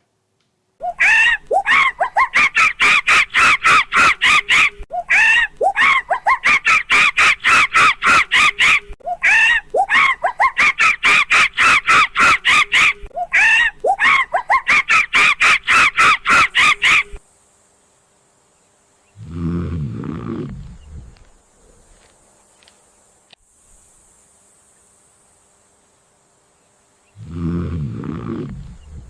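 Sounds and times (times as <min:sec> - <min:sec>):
animal calling in rapid cries: 0:00.8 - 0:17.2.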